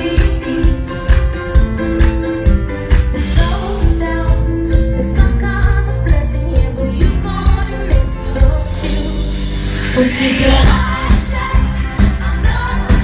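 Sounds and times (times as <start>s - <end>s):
live pop band playing: 0.0s - 13.0s
steady drum beat: 10.2s - 13.0s.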